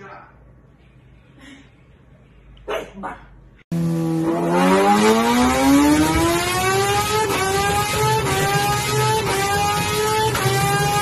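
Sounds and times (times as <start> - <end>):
motorcycle engine accelerating: 3.7 - 11.0.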